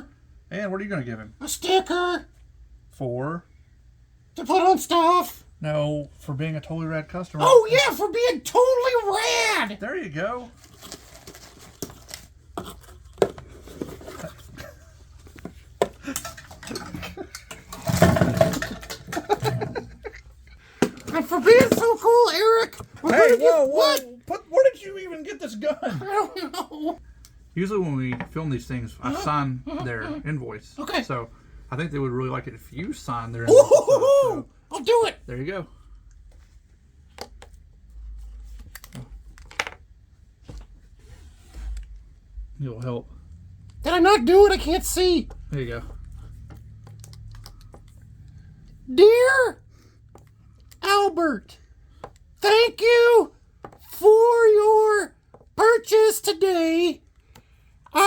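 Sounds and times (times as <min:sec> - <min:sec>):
paper handling noise: 0:10.5 - 0:15.8
objects knocking and clicking: 0:15.2 - 0:19.9.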